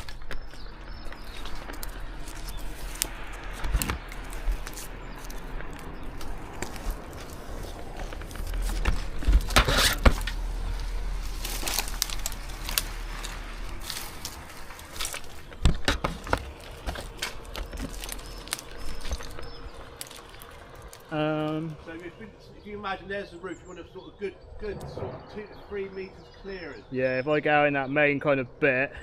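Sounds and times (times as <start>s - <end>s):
rustling of branches and needles: 0.0s - 24.6s.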